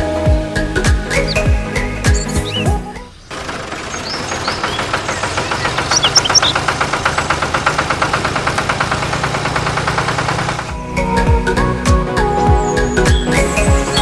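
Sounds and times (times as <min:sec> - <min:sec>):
high squeaks: 0:01.1 - 0:06.8
fast clatter of ticks: 0:03.3 - 0:10.7.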